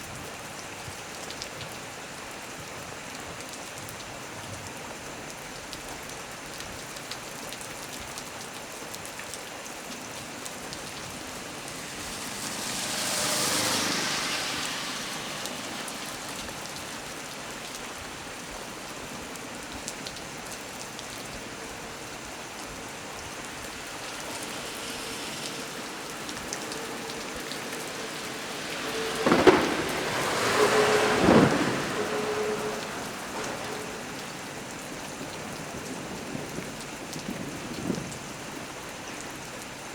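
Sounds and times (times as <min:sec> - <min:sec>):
heavy rain falling on tree: 0:00.0 - 0:39.9
rolling thunder: 0:22.8 - 0:38.6
sharp thunder cracks: 0:25.2 - 0:34.5.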